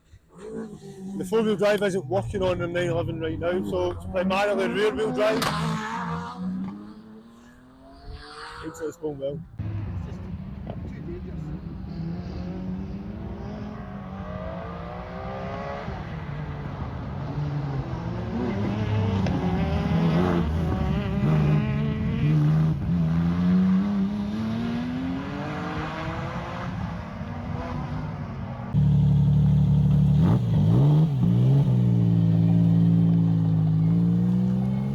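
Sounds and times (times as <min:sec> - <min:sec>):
rally car engine revving past: 0:04.6 - 0:07.5, 0:11.5 - 0:28.2.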